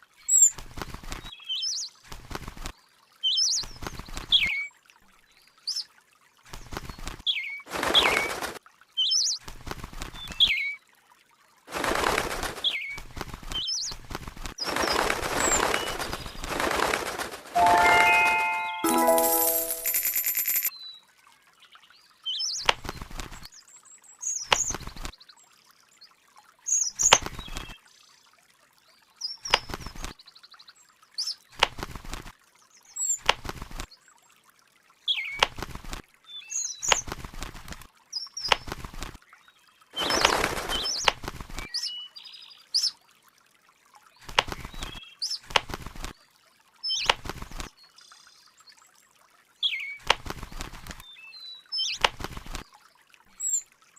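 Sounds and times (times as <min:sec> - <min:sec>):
bird flapping wings: 0:00.6 - 0:01.3, 0:02.1 - 0:02.7, 0:06.5 - 0:08.6, 0:09.4 - 0:10.4, 0:11.7 - 0:20.6, 0:22.7 - 0:23.4, 0:29.5 - 0:30.1, 0:31.6 - 0:32.3, 0:33.2 - 0:33.8, 0:35.4 - 0:36.0, 0:36.9 - 0:37.8, 0:38.5 - 0:39.2, 0:40.0 - 0:41.7, 0:44.3 - 0:46.2, 0:47.0 - 0:47.7, 0:50.0 - 0:51.0, 0:52.0 - 0:52.6.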